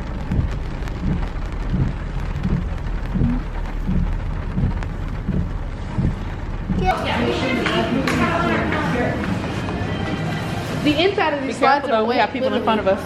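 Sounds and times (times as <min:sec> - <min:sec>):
low dull thumps: 0:00.0 - 0:08.0
heavy rain pouring: 0:00.0 - 0:13.0.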